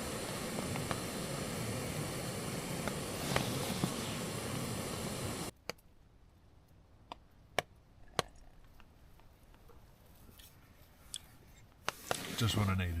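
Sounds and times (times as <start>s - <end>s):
gas stove burner hissing: 0.0s - 5.6s, 11.8s - 13.0s.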